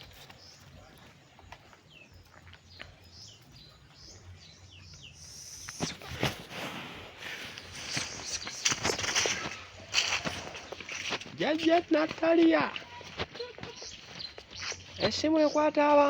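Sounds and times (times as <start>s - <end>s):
small birds chirping: 0.0s - 16.0s
rustling crackling noise: 5.2s - 15.3s.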